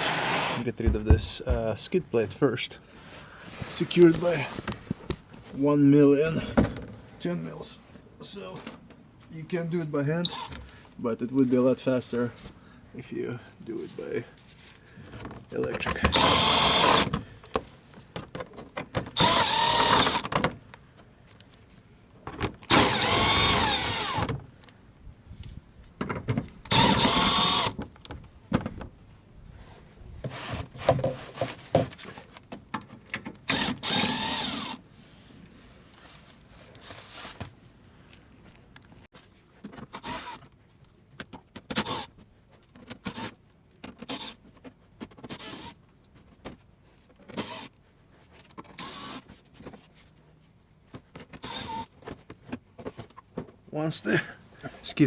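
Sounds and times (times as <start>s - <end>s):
power tool motor whine: 19.2s - 20.2s, 22.7s - 24.3s, 26.7s - 27.8s, 33.5s - 34.8s.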